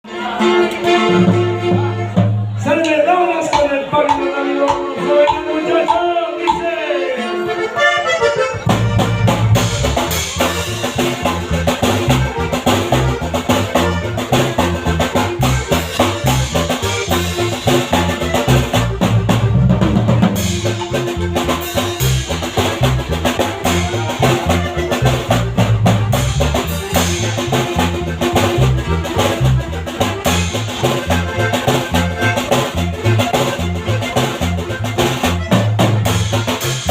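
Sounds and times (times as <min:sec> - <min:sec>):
band music: 0:00.0 - 0:36.9
drum kit beat: 0:01.1 - 0:06.8, 0:07.6 - 0:36.9
stepping bass line: 0:07.4 - 0:36.9.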